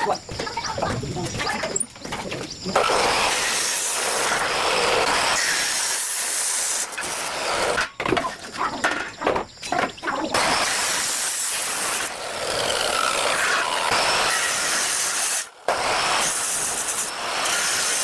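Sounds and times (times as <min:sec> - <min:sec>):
loud hiss: 0:10.4 - 0:18.0.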